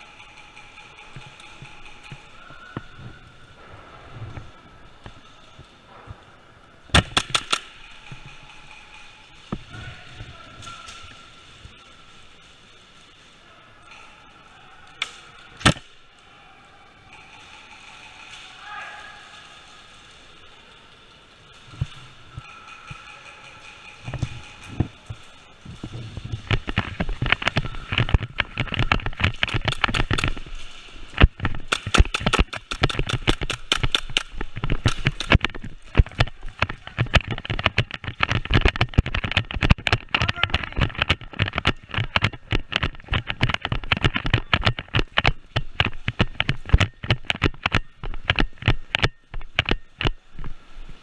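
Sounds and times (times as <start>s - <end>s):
airsoft guns firing: 6.9s - 8.8s, 31.6s - 35.4s.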